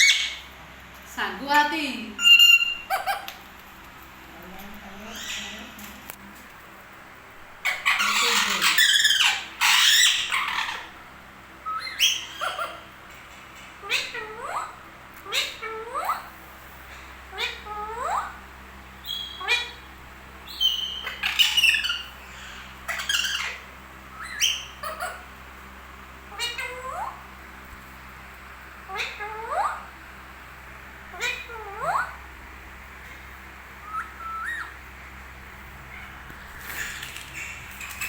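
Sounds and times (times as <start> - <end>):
parrot squawking: 0.0 - 0.5, 2.2 - 3.4, 4.9 - 5.7, 7.6 - 11.0, 11.6 - 13.0, 13.8 - 16.4, 17.3 - 18.4, 19.0 - 25.4, 26.3 - 27.3, 28.9 - 29.9, 31.1 - 32.2, 33.8 - 34.8.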